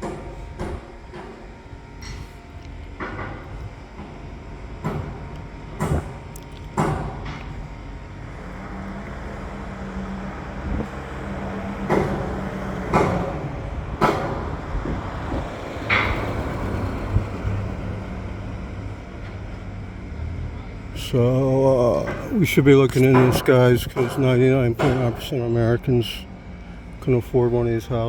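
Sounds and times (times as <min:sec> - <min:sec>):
engine humming: 0:00.0 - 0:28.0
sharp bangs and knocks: 0:04.8 - 0:06.2, 0:06.8 - 0:07.5, 0:11.8 - 0:17.6, 0:21.9 - 0:25.5.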